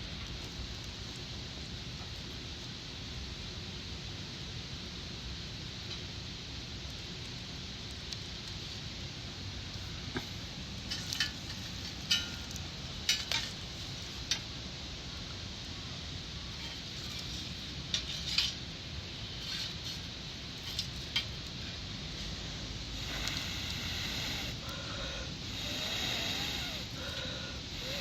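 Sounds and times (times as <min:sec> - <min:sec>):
fire hissing: 0:00.0 - 0:28.0
wood fire popping: 0:05.8 - 0:28.0.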